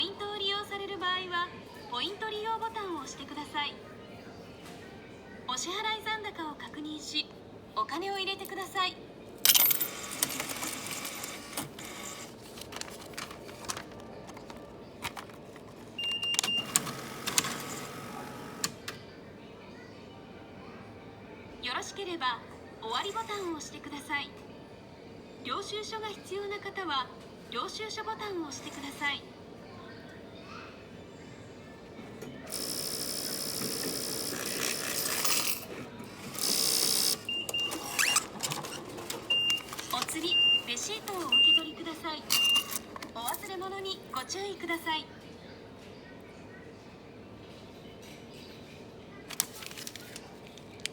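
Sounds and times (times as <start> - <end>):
cash machine whirring and clicking: 9.4 - 19.0, 32.5 - 43.6, 49.3 - 50.9.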